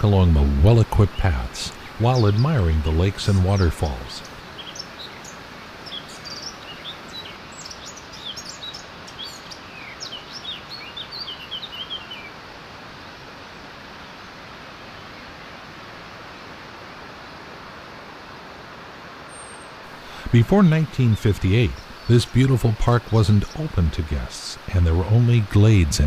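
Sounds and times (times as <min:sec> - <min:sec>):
water rushing: 0:00.0 - 0:09.8, 0:12.4 - 0:26.0
songbirds chirping: 0:00.0 - 0:13.1, 0:19.1 - 0:26.0.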